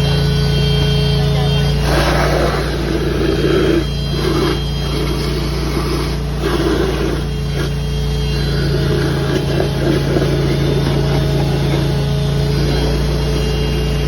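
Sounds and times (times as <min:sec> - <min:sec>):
vacuum excavator engine humming: 0:00.0 - 0:14.0
water and mud sucked up hose: 0:01.7 - 0:14.0.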